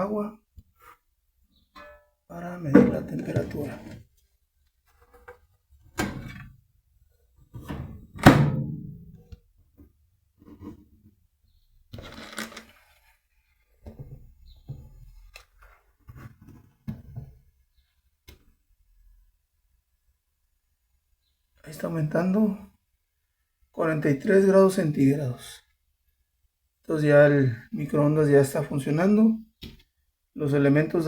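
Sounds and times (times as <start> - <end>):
handling knocks and thunks: 2.7 - 4.0.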